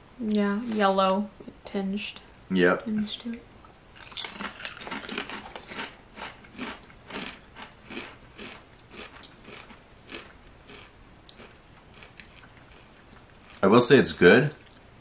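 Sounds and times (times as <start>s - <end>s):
potato chips crunching: 4.0s - 13.7s.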